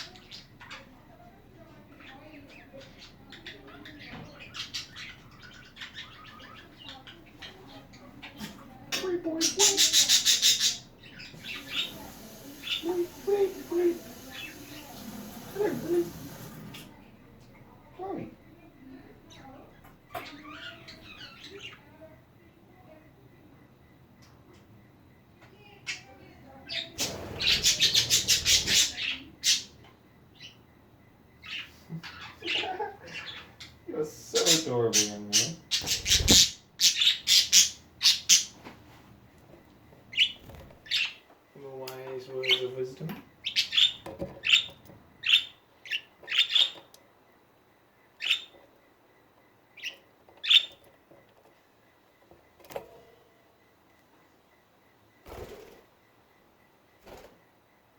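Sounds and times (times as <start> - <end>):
budgerigars chirping and chattering: 0.0 - 1.0, 1.9 - 16.5, 20.1 - 21.9, 25.8 - 30.6, 31.4 - 38.6, 40.1 - 46.9, 48.2 - 48.6, 49.8 - 50.9.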